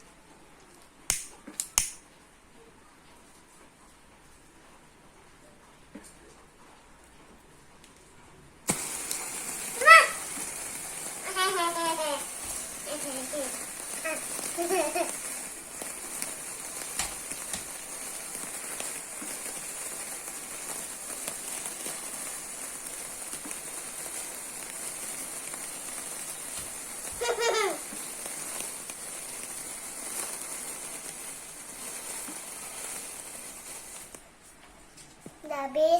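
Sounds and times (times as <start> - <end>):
firework fizzing and crackling: 8.6 - 34.4.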